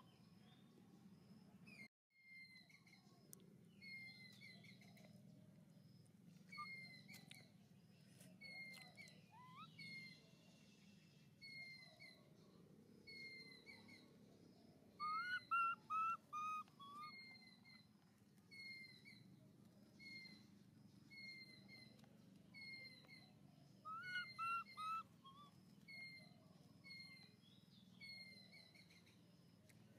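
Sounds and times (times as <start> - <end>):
quick whistled bird notes: 23.9 - 25.5.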